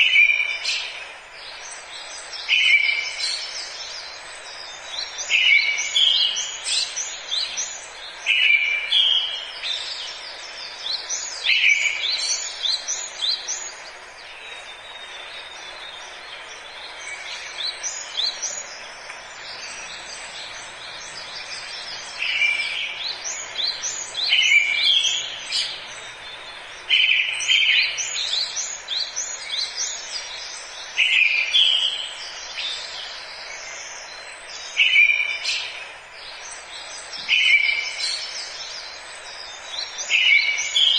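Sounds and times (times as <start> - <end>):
songbirds singing: 0.0 - 40.9
steady background hiss: 0.0 - 40.9.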